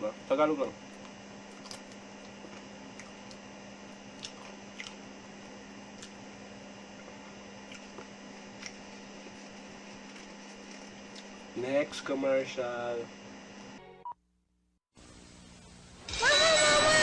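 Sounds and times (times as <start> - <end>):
faint electrical hum: 0.0 - 13.9.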